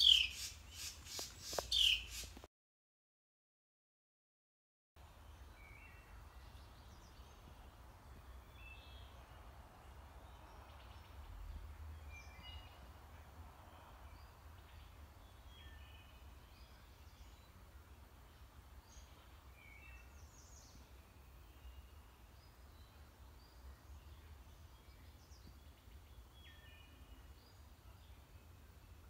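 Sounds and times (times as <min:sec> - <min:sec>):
faint bird chirps: 0:00.0 - 0:02.4.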